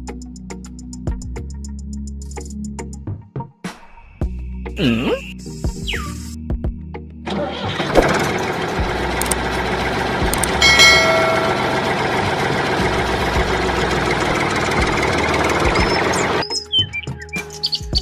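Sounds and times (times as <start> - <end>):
diesel engine idling: 7.4 - 16.4.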